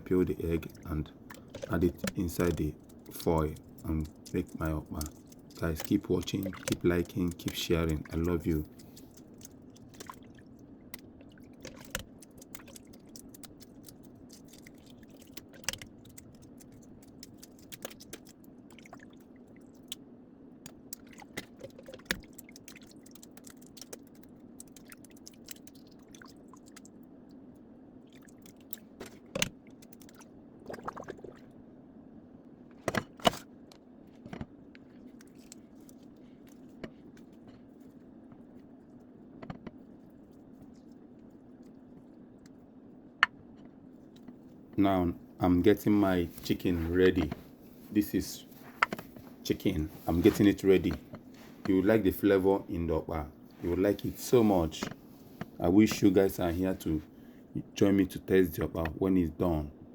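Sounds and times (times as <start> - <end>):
steady low hum: 0.0 - 59.9
egg shell crackling: 0.7 - 20.0.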